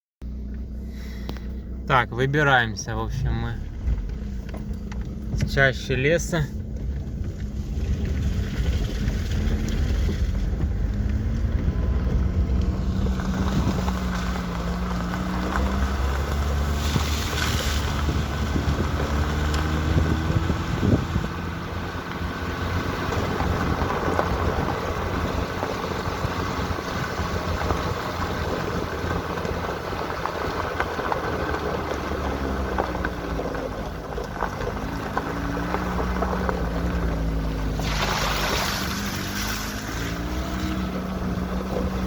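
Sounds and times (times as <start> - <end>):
steady rumbling noise: 0.2 - 21.8
vehicle engine driving: 0.2 - 42.0.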